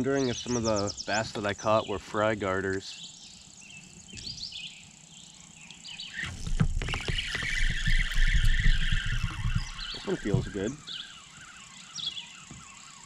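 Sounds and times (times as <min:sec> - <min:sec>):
insects trilling: 0:00.0 - 0:13.0
short bird chirps: 0:05.6 - 0:13.0
high buzzing: 0:06.1 - 0:13.0
low rumbling and knocks: 0:06.3 - 0:10.8.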